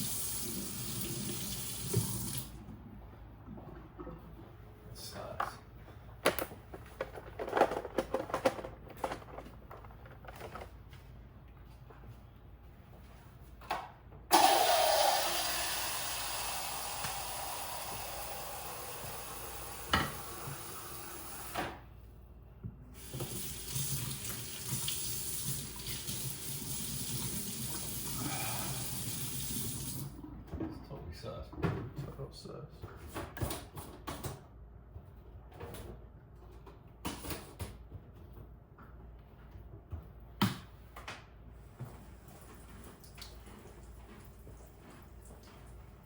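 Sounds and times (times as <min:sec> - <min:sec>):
tap water running into sink: 0:00.0 - 0:02.6, 0:23.0 - 0:30.2.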